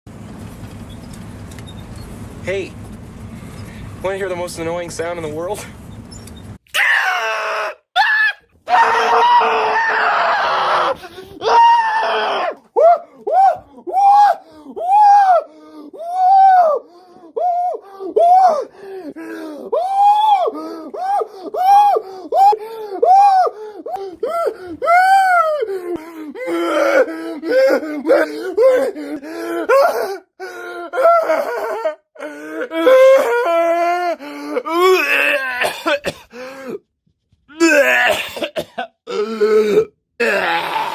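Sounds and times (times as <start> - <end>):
man crying and wailing: 6.8 - 36.9, 37.5 - 40.9
gasping breaths: 15.5 - 16.1, 16.8 - 19.8, 20.5 - 24.8, 25.6 - 31.0, 34.0 - 34.8, 36.2 - 36.9.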